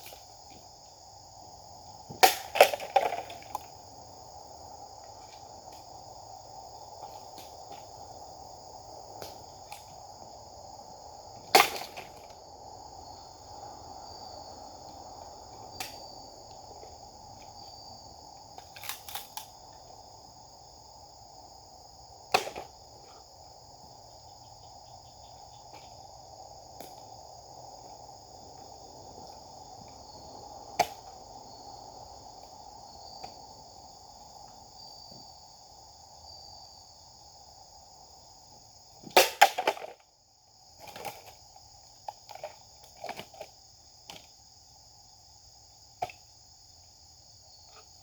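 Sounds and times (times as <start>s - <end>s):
insects droning: 0.0s - 48.0s.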